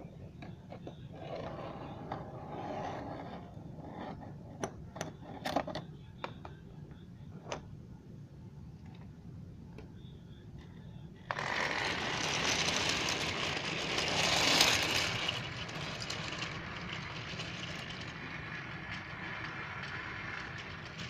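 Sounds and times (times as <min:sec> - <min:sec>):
toy train motor whirring: 0:11.3 - 0:21.0.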